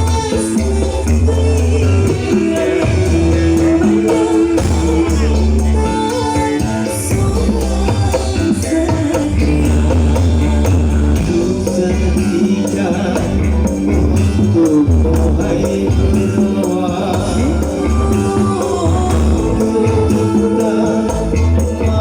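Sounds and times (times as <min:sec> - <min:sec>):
jingling tambourine percussion: 0:00.0 - 0:22.0
loud music with pulsing bass: 0:00.0 - 0:22.0.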